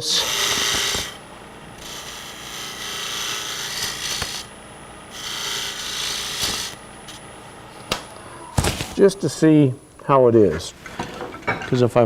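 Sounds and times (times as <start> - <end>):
lathe tool cutting wood: 0.0 - 7.8.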